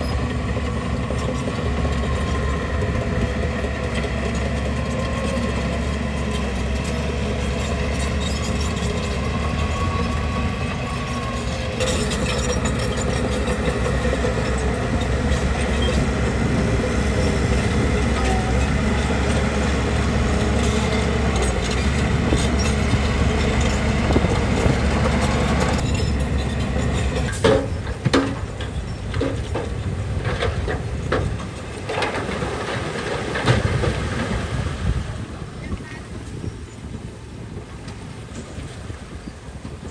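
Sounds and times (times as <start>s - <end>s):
bulldozer diesel engine running: 0.0s - 39.9s
sharp knocks and clanks: 26.8s - 34.4s.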